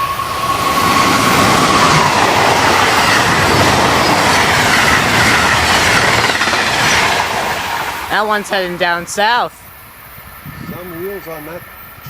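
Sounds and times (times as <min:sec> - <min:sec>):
electric locomotive whine: 0:00.0 - 0:12.0
train wheels rushing on rails: 0:00.0 - 0:12.0.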